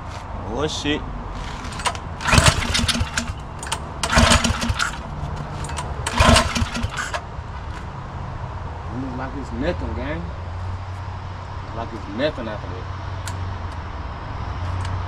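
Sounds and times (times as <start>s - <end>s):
small engine cranking: 1.4s - 7.8s.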